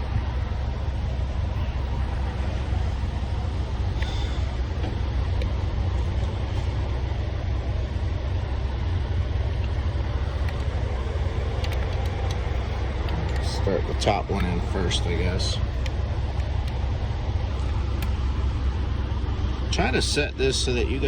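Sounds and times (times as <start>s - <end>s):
diesel truck engine idling: 0.0s - 21.0s
faint clicks of parts handled: 11.4s - 13.6s.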